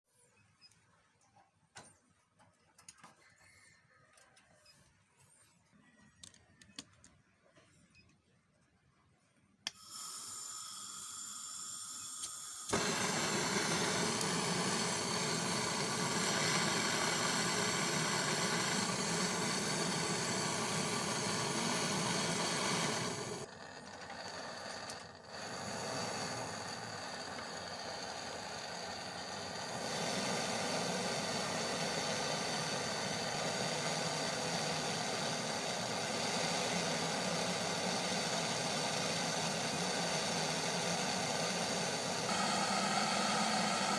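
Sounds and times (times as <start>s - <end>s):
gas torch flame hissing: 9.7s - 43.9s.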